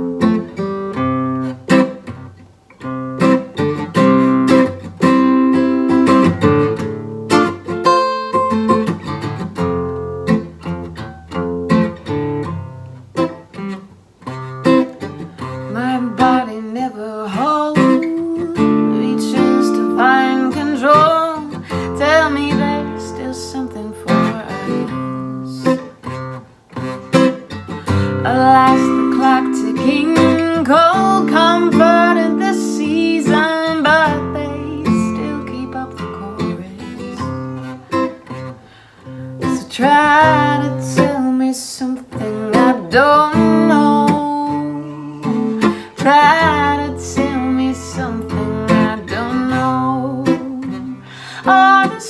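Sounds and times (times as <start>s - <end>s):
acoustic guitar strummed and picked: 0.0s - 52.0s.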